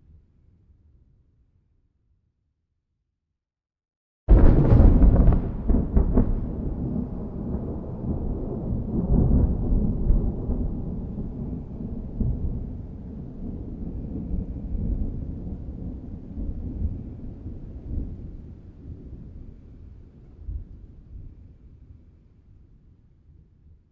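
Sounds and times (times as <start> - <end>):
thunder rumbling: 4.3 - 19.3.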